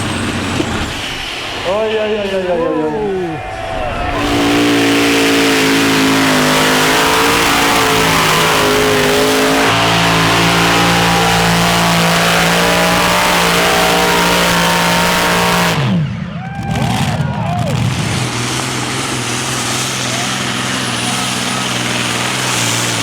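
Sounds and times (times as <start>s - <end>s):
engine running flat out: 0.0s - 23.0s.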